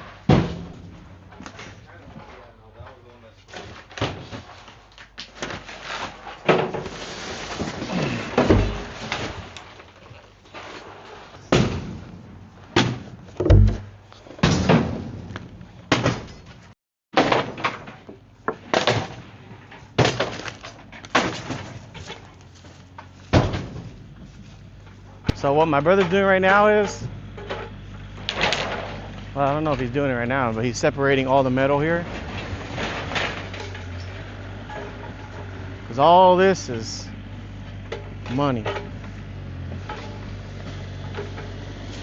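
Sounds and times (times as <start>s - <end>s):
heavy blows and breaking crashes: 0.0s - 1.8s, 19.9s - 22.2s
debris cracking and clattering: 17.2s - 23.9s, 31.9s - 35.5s.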